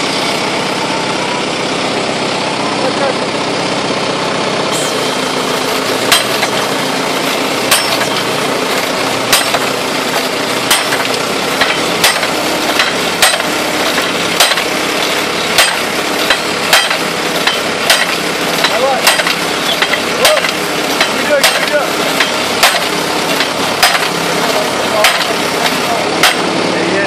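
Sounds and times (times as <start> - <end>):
drilling rig engine running: 0.0 - 27.0
sharp repeating knocks: 6.0 - 6.7, 7.6 - 8.4, 9.2 - 24.3, 24.9 - 26.5.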